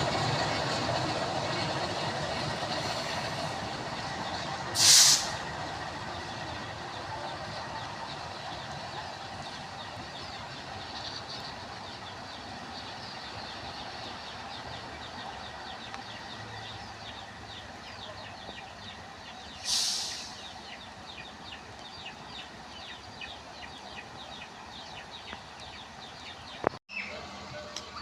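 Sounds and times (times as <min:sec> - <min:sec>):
loud hiss: 0:04.7 - 0:05.5, 0:19.6 - 0:20.6
small birds chirping: 0:05.7 - 0:27.2.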